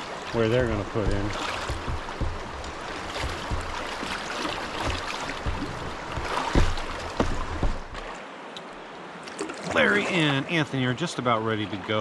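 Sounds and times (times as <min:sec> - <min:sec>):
dull knocks: 0:00.0 - 0:08.1
river current rushing: 0:00.0 - 0:10.7.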